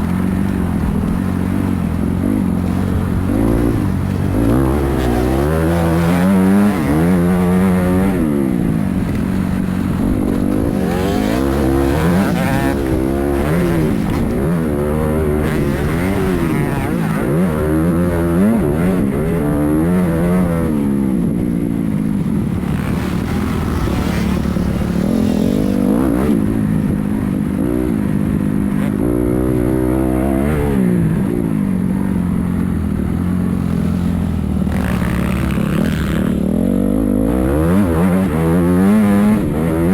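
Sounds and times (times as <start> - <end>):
motorbike engine revving: 1.0 - 27.0, 32.6 - 39.9.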